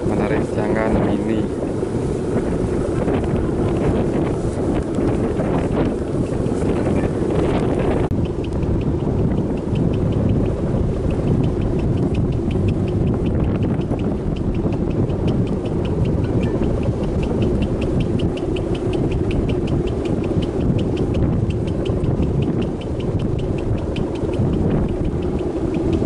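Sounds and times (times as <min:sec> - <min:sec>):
wind buffeting microphone: 0:00.0 - 0:26.0
faint even ticking: 0:02.4 - 0:26.0.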